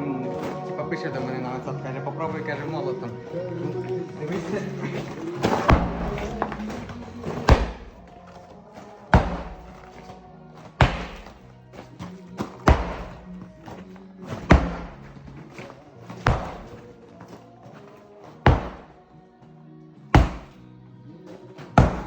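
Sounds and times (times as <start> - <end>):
background music with low tones: 0.0 - 22.0
sledgehammer blows: 4.3 - 17.0, 18.4 - 19.0, 20.2 - 20.6, 21.6 - 22.0.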